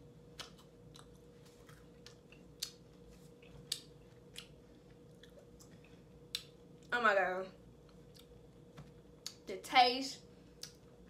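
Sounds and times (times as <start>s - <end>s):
faint steady hum: 0.0s - 11.0s
person chewing crunchy wafer: 0.3s - 6.4s.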